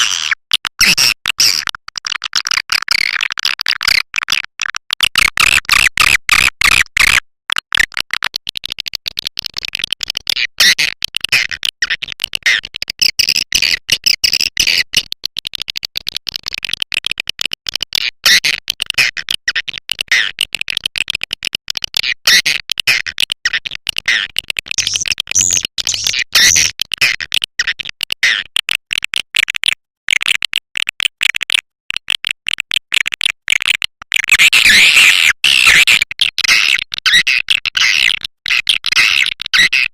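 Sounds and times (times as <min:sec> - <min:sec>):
swiftlets chirping: 0:24.8 - 0:26.7.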